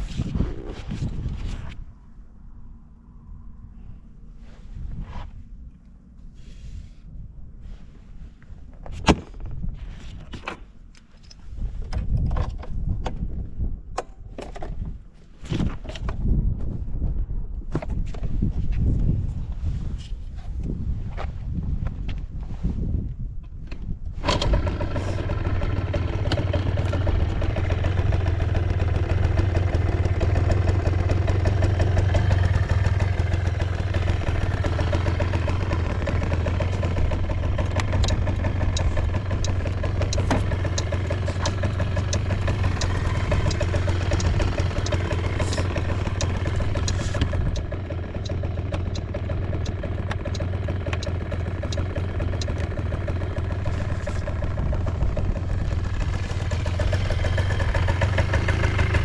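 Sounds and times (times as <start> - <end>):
scooter engine idling: 24.2 - 59.0
sharp clicks: 33.0 - 52.8.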